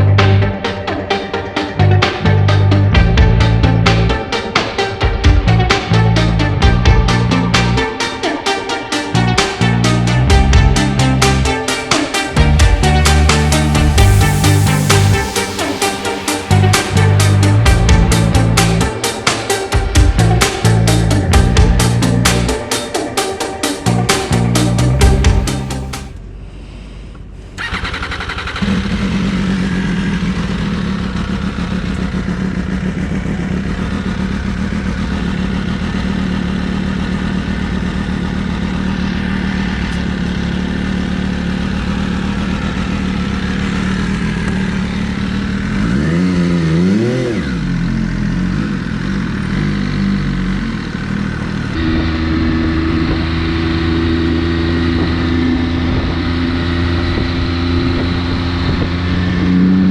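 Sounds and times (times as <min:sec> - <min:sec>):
motorcycle engine starting and idling: 0:00.0 - 0:59.9
engine throttle blip: 0:24.0 - 0:36.0.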